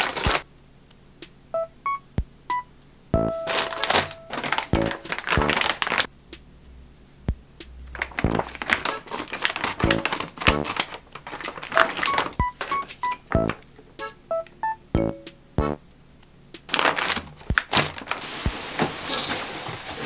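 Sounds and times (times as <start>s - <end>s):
plastic packaging crinkling: 0.0s - 0.4s, 3.4s - 6.1s, 7.9s - 13.7s, 16.7s - 20.0s
light music with plucked notes: 1.2s - 18.6s.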